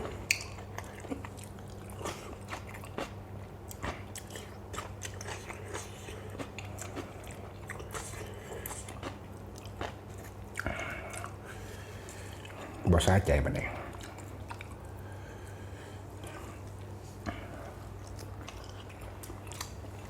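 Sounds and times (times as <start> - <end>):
person chewing and crunching food: 0.0 - 12.9, 13.6 - 20.0.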